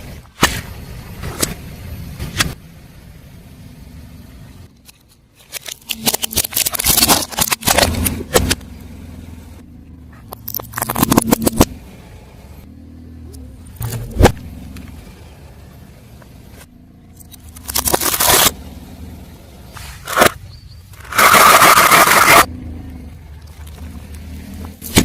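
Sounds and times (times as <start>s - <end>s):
car engine humming: 0.0s - 25.0s
tyre crushing crunchy objects: 5.4s - 8.6s, 17.4s - 18.6s, 19.7s - 22.5s, 23.4s - 25.0s.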